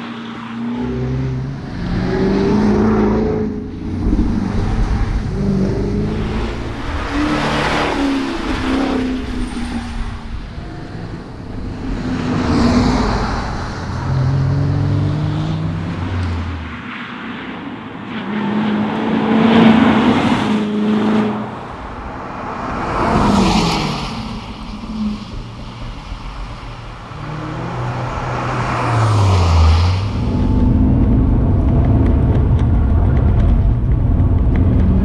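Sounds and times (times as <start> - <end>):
car engine accelerating hard: 0.0 - 16.8.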